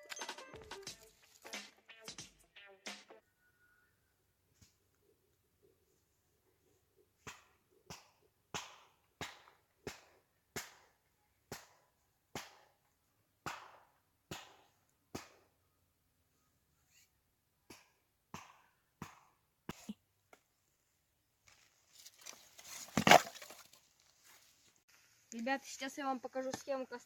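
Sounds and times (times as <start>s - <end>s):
firewood being chopped: 7.2s - 15.5s, 22.2s - 23.8s.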